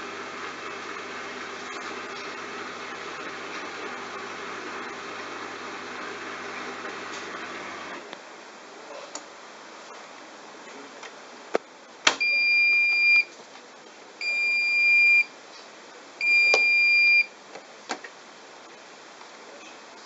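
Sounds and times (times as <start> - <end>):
washing machine beeping: 12.2 - 13.3, 14.2 - 15.3, 16.2 - 17.3.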